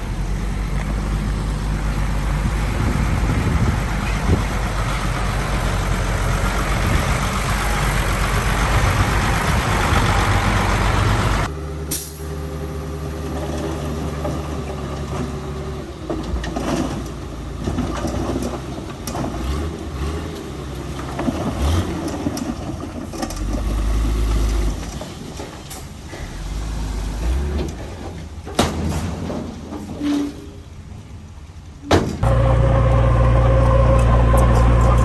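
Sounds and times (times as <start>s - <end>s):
heavy diesel engine revving: 0.0s - 28.4s, 32.2s - 35.0s
sharp knocks and clanks: 27.6s - 30.0s, 31.8s - 32.3s.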